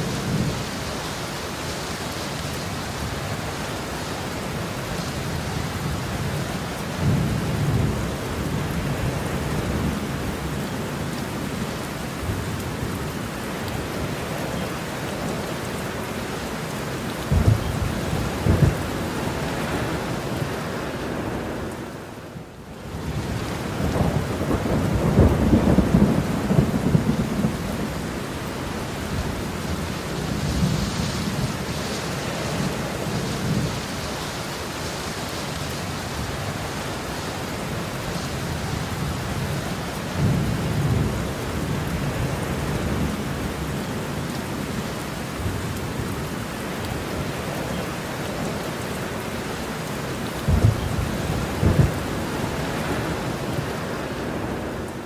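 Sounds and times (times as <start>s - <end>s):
heavy rain: 0.0s - 55.0s
thunder rumbling: 17.2s - 20.6s, 23.1s - 34.0s, 50.4s - 54.9s.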